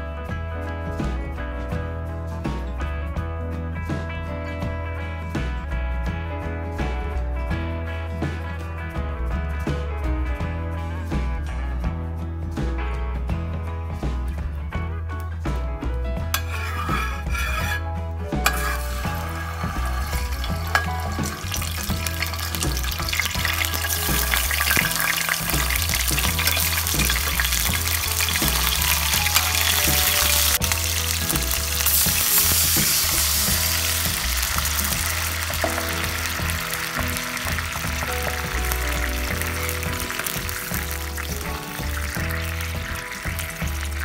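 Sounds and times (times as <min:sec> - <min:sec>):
background music: 0:00.0 - 0:44.0
garlic sizzling in oil: 0:16.4 - 0:17.8, 0:18.4 - 0:44.0
metal spatula scraping pan: 0:16.4 - 0:28.7.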